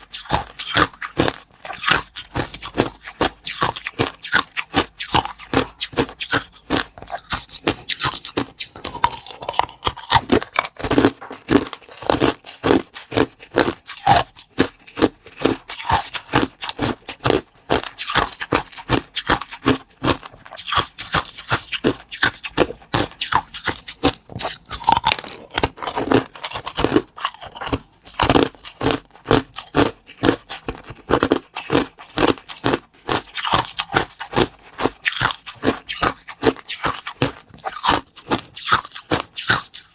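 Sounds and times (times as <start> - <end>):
person crunching cakes: 0.0 - 39.9.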